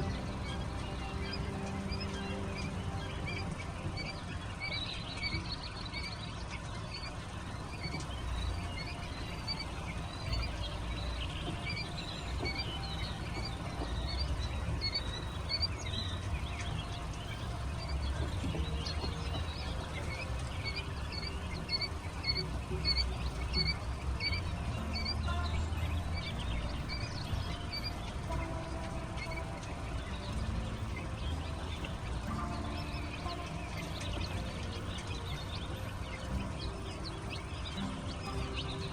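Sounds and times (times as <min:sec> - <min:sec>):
chicks peeping: 0:00.0 - 0:38.9
steady low rumble: 0:00.0 - 0:38.9.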